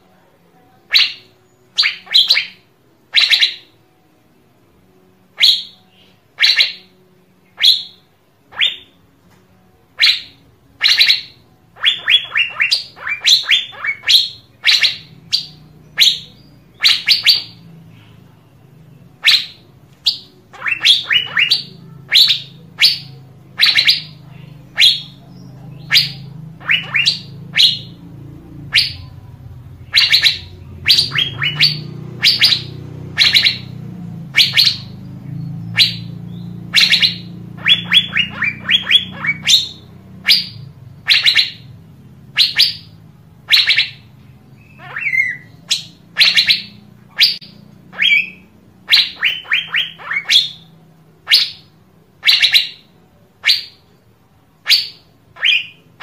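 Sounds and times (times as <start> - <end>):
low background hum: 0.0 - 56.0
bird calling high sharp notes: 0.8 - 3.9, 5.4 - 9.0, 9.9 - 54.0, 54.6 - 56.0.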